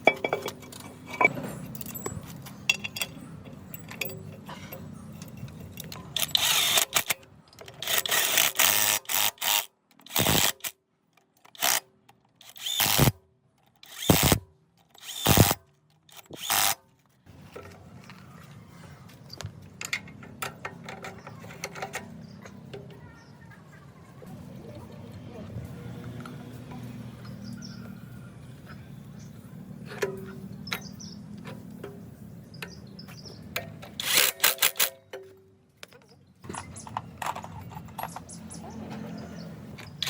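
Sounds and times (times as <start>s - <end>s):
low workshop background: 0.0s - 40.0s
power tool bursts: 7.8s - 10.7s, 12.5s - 13.2s, 13.9s - 14.4s, 15.0s - 15.6s, 34.0s - 34.9s.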